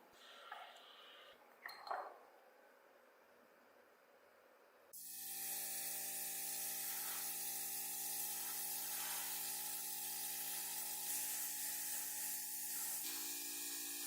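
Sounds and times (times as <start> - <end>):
spray paint hissing: 5.0 - 14.0.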